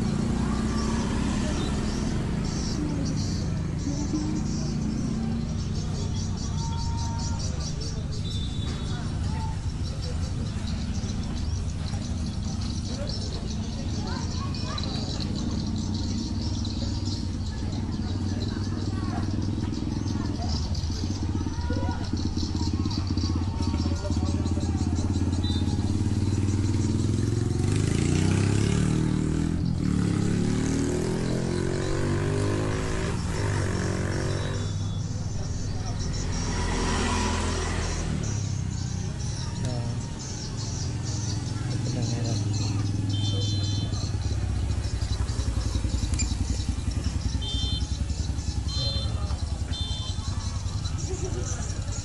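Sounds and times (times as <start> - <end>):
small engine running: 17.6 - 52.0
motor running loud: 45.0 - 47.8.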